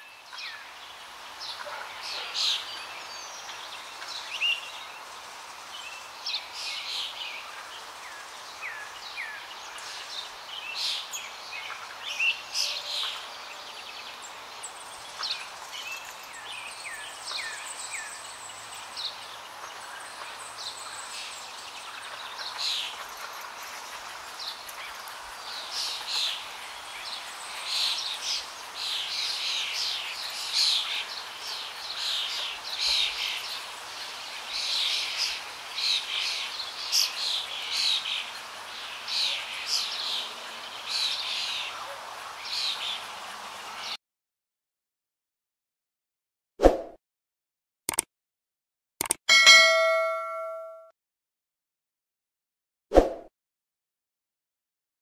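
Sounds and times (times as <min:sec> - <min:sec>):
birds chirping: 0:49.3 - 0:50.8.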